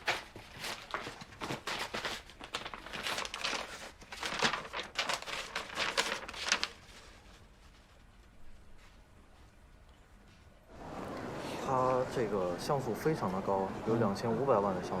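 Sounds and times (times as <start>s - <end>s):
packaging crinkling and tearing: 0.0s - 7.4s.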